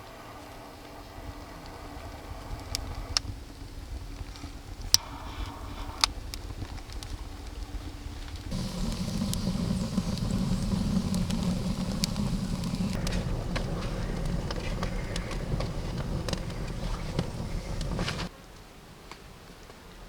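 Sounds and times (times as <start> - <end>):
wood fire crackling and popping: 2.1 - 18.3
steady low rumble: 8.3 - 18.3.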